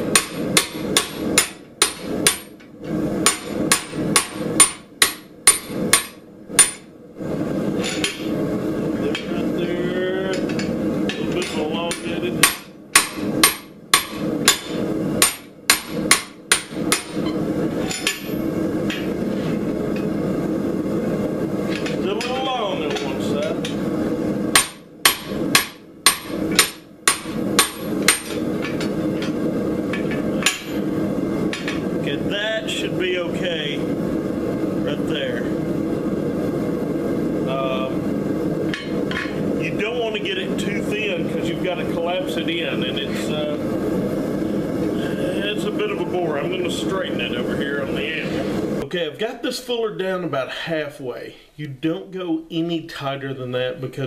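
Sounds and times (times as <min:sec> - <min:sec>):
hammer striking hot steel: 0:00.0 - 0:06.9, 0:07.7 - 0:08.4, 0:09.1 - 0:09.4, 0:10.3 - 0:20.1, 0:21.7 - 0:23.8, 0:24.5 - 0:31.9, 0:38.7 - 0:39.5
steady drone: 0:00.0 - 0:48.8.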